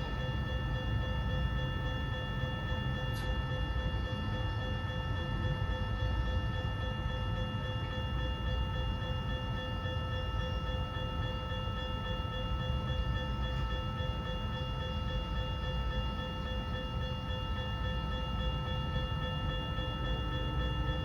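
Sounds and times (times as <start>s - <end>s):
freight train rumbling: 0.0s - 0.5s
crossing warning bell ringing: 0.0s - 21.0s.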